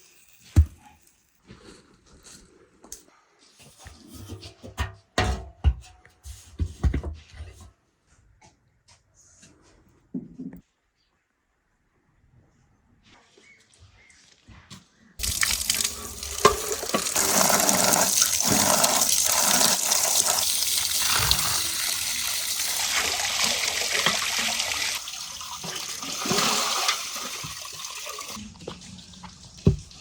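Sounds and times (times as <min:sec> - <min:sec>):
water pouring: 0:15.2 - 0:30.0.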